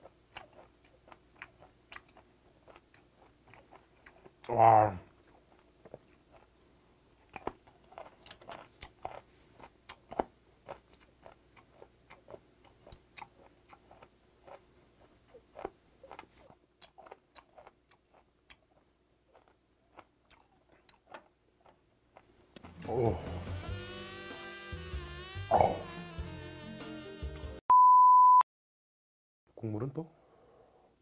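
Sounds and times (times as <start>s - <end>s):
person chewing with mouth clicks: 0.0s - 23.4s.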